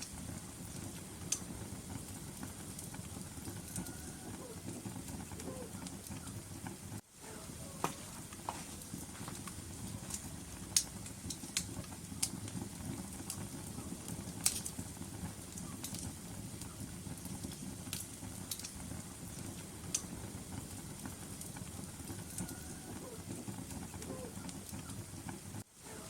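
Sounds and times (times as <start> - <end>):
flames rumbling: 0.0 - 26.0
logs crackling and popping: 0.0 - 26.0.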